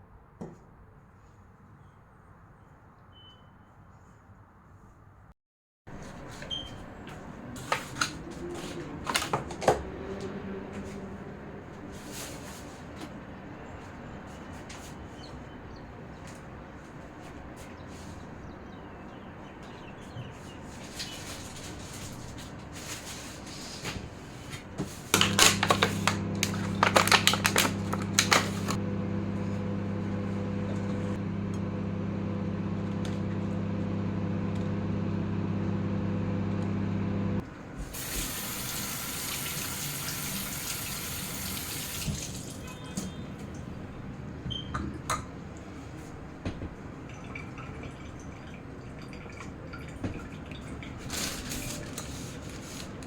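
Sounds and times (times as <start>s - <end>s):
appliance clicks: 25.1s - 37.4s
kitchen appliance humming: 25.1s - 42.9s
tap running water: 25.2s - 28.8s, 37.9s - 42.7s.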